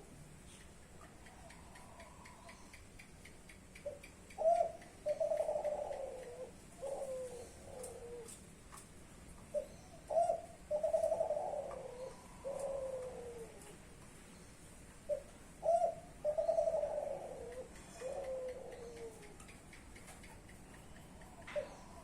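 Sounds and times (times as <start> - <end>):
dove cooing: 3.8 - 8.4, 9.5 - 13.8, 15.1 - 19.5, 21.4 - 22.0.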